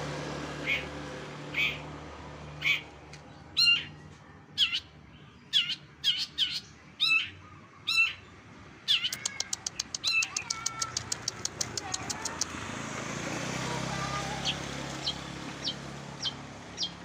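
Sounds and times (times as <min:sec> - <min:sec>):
bird singing mimicked calls: 0:00.6 - 0:00.9, 0:01.5 - 0:01.8, 0:02.6 - 0:02.9, 0:03.6 - 0:04.0, 0:04.6 - 0:04.9, 0:05.5 - 0:12.6, 0:14.0 - 0:17.0.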